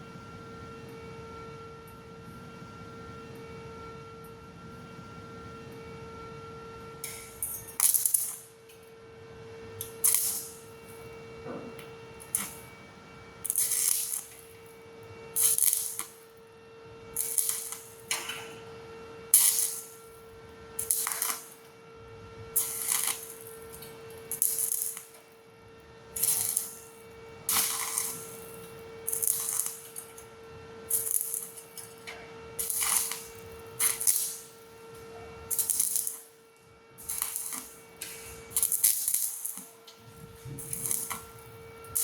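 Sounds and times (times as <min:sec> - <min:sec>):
welding arc crackling: 0:07.1 - 0:08.5, 0:09.8 - 0:12.8, 0:13.4 - 0:16.4, 0:17.1 - 0:18.7, 0:19.3 - 0:21.7, 0:22.5 - 0:25.4, 0:26.0 - 0:32.0, 0:32.6 - 0:42.0.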